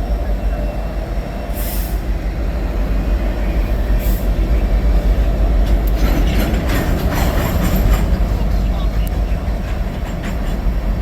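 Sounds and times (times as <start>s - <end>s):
train rumbling past: 0.0s - 11.0s
wheel clacks: 5.6s - 10.8s.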